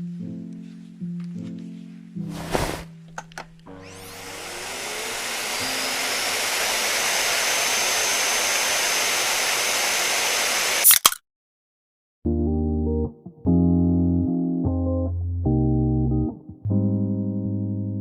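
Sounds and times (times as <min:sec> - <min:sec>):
hair dryer whirring: 0:02.5 - 0:10.9
hair dryer switch click: 0:03.1 - 0:03.8.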